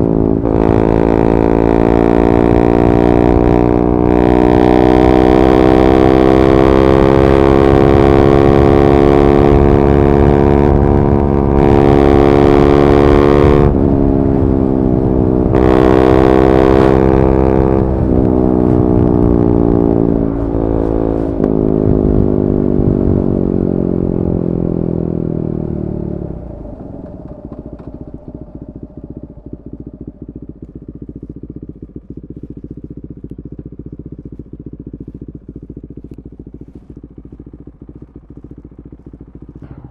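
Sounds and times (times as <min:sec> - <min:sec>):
motorcycle engine revving: 0:00.0 - 0:39.9
engine idling unevenly: 0:25.6 - 0:39.9.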